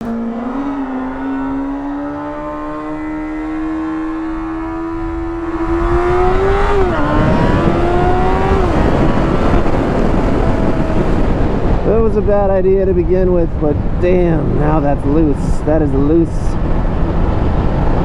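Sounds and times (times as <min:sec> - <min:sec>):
motorcycle engine accelerating: 0:00.0 - 0:12.0
wind rush: 0:04.1 - 0:18.0.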